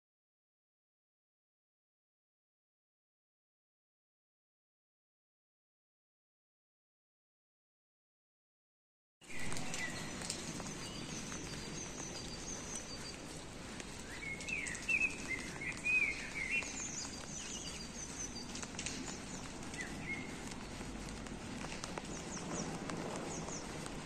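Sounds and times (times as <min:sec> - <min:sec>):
small birds chirping: 0:09.2 - 0:24.0.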